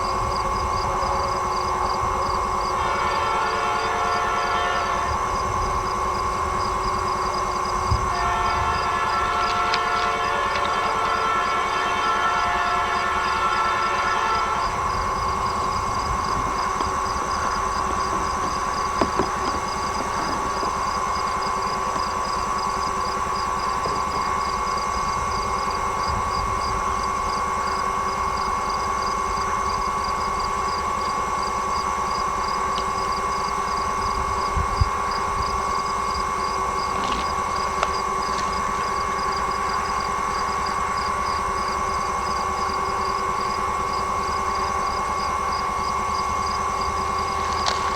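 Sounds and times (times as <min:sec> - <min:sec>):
faint rapid pulsing: 0:00.0 - 0:47.9
steady hum with constant tone: 0:00.0 - 0:47.9
train horn: 0:00.0 - 0:47.9
small knocks: 0:16.4 - 0:22.1.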